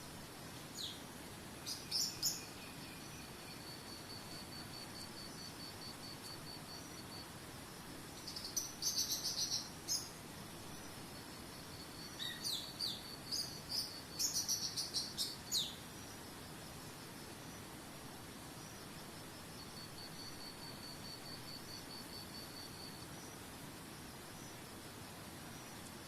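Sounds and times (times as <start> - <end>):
songbirds singing: 0.6 - 7.3, 8.1 - 16.2.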